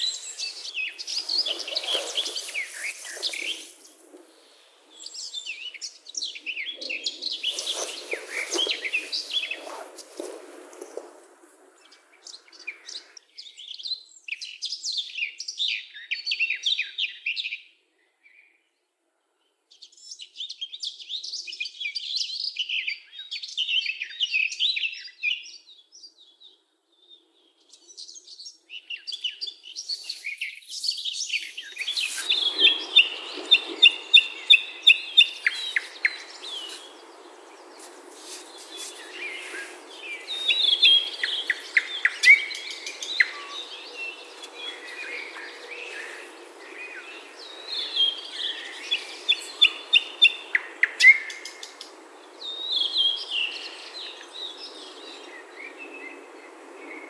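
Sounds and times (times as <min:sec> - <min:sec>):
hiss-like background: 0:00.0 - 0:13.6, 0:27.2 - 0:57.0
songbirds singing: 0:00.0 - 0:57.0.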